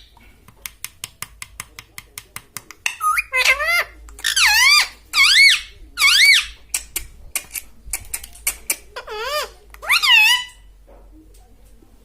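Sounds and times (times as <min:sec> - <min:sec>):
parrot calling: 0:02.9 - 0:06.6, 0:08.5 - 0:10.7.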